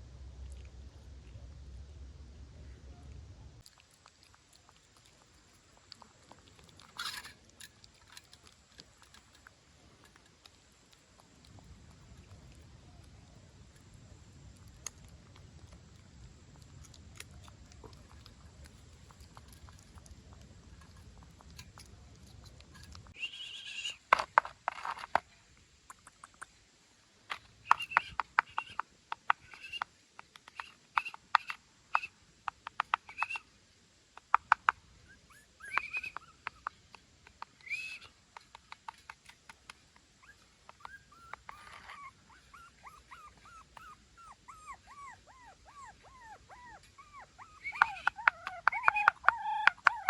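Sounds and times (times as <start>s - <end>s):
puppy eating wet clicks: 3.1s - 23.2s, 25.8s - 26.7s, 27.4s - 33.4s, 34.1s - 35.0s, 35.6s - 50.0s
puppy squeaking: 35.1s - 36.7s, 40.2s - 50.0s.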